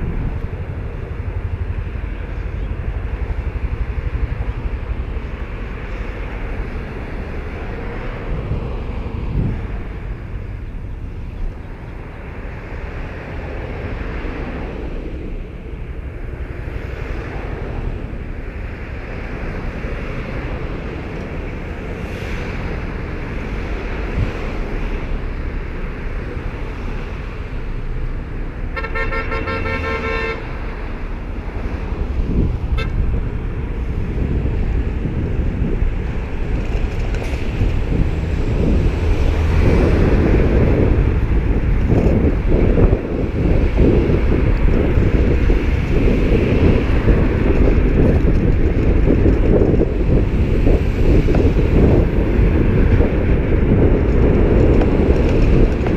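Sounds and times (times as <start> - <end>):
road traffic rumble: 0.0 - 55.9
wind on microphone: 0.0 - 55.9
car horn honk: 28.7 - 30.6, 32.7 - 33.0.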